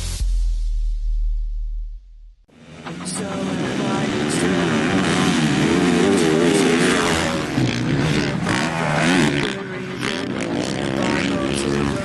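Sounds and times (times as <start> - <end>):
dirt bike engines revving: 2.5 - 12.0.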